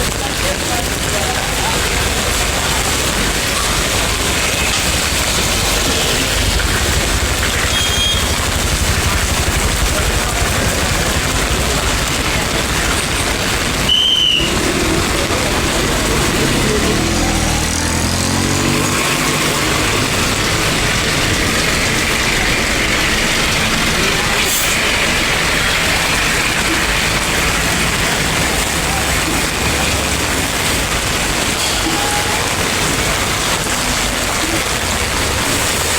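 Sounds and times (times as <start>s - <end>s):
heavy rain hiss: 0.0s - 35.9s
road traffic: 0.0s - 35.9s
vehicle engine passing: 2.3s - 31.5s
short high beep: 7.7s - 8.4s.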